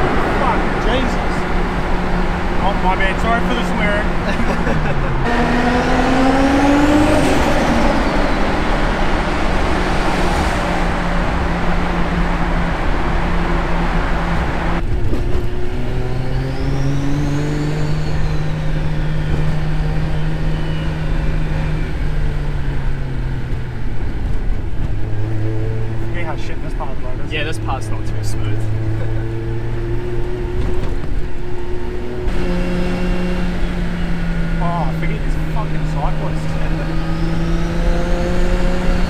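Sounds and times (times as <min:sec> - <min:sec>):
car engine pulling hard: 0:00.0 - 0:39.0
turbo whistle: 0:20.3 - 0:22.0.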